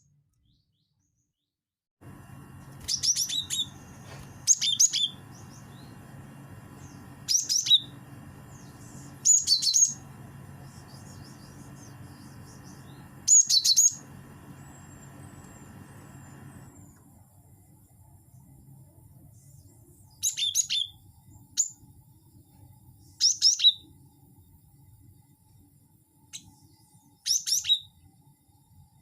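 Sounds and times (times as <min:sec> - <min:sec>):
steady low hum: 0:02.0 - 0:20.2
bird high chipping calls: 0:02.8 - 0:16.4.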